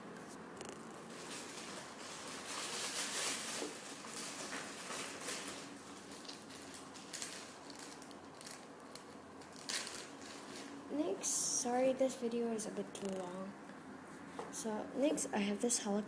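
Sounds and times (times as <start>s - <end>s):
foam toy rustling and crackling: 0.6s - 13.3s.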